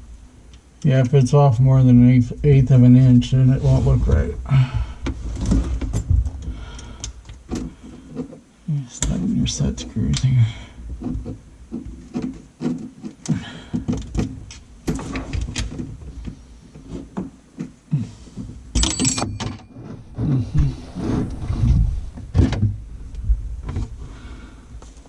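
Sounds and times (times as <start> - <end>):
tools knocking and scraping metal: 11.0 - 17.8, 18.4 - 20.6.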